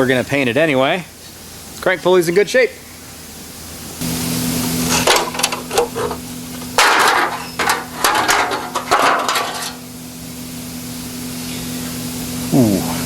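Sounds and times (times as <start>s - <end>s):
steady low hum: 2.6s - 13.0s.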